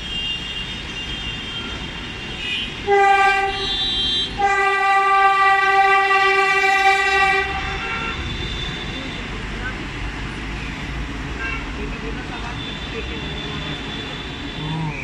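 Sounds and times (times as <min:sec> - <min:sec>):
train horn blasts: 0:02.8 - 0:08.1.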